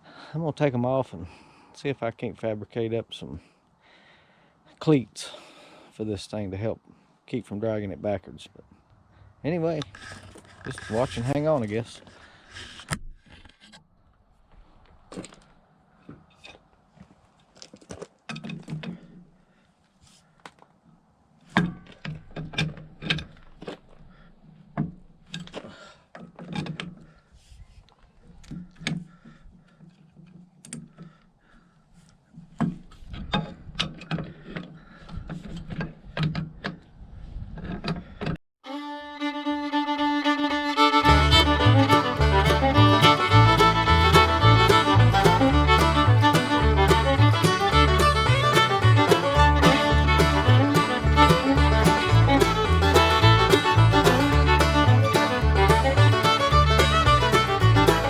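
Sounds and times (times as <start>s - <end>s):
fiddle tune: 38.6s - 58.0s.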